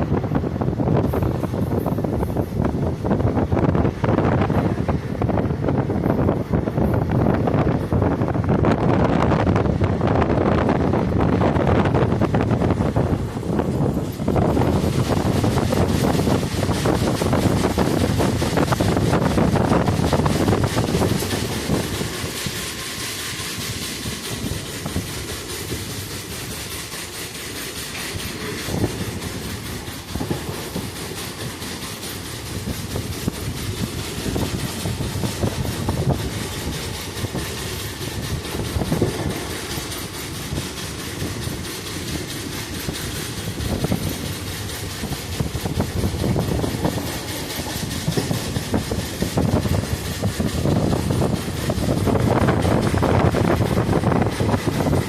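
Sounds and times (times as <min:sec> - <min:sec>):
train rumble: 0:00.0 - 0:55.0
wheels clicking over rail joints: 0:00.0 - 0:55.0.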